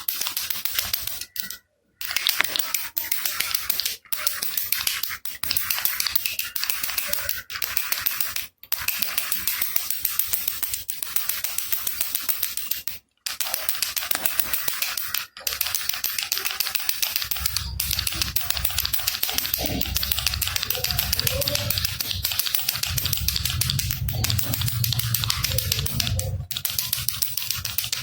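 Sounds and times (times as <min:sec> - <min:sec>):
low hum: 0:17.1 - 0:27.9.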